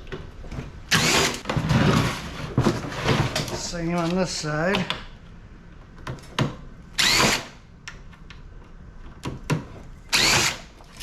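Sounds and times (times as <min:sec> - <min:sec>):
power drill running: 0:00.9 - 0:01.4, 0:07.0 - 0:07.6, 0:10.1 - 0:10.6.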